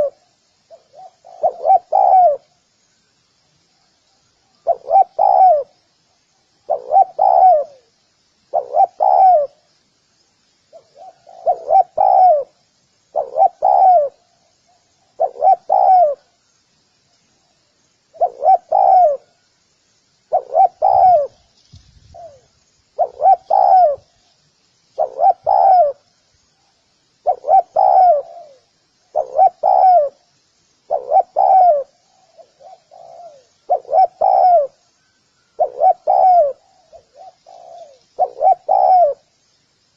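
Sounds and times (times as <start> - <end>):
dove cooing: 0.0 - 2.6, 4.6 - 5.8, 6.6 - 7.9, 8.5 - 9.7, 10.7 - 16.4, 18.1 - 19.4, 20.3 - 21.4, 22.1 - 24.2, 25.0 - 26.1, 27.2 - 30.3, 30.9 - 34.8, 35.4 - 39.3.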